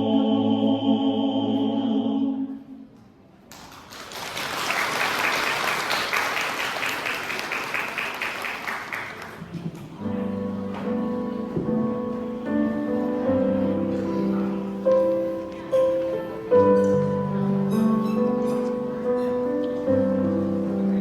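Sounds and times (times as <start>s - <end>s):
audience applauding: 3.5s - 9.7s.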